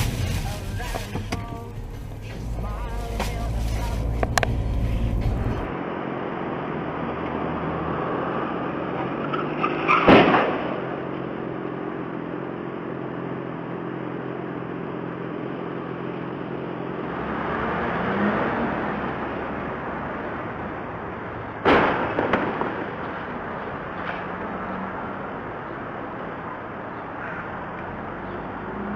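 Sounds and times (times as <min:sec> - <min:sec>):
vehicle crash: 0:00.0 - 0:05.6, 0:08.3 - 0:11.3, 0:21.6 - 0:24.5
car road and engine noise: 0:00.0 - 0:28.9
loud bang: 0:10.0 - 0:10.9, 0:21.6 - 0:23.2.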